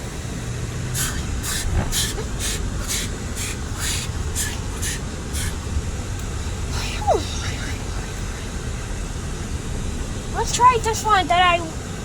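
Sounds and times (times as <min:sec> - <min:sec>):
pulsing hiss: 0:00.8 - 0:11.1.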